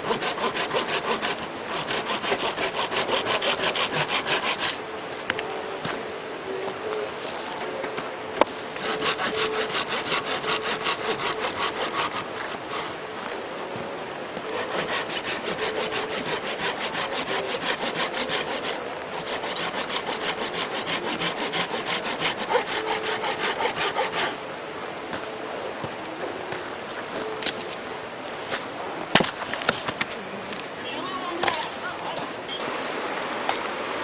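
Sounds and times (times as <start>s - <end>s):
hand saw cutting wood: 0.0s - 4.8s, 8.8s - 13.0s, 14.5s - 24.4s.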